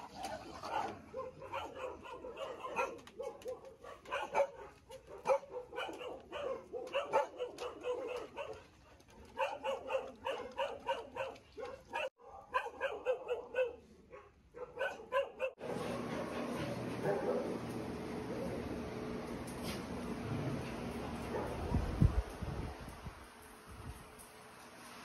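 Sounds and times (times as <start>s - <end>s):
many dogs barking and yipping: 0.0s - 17.6s.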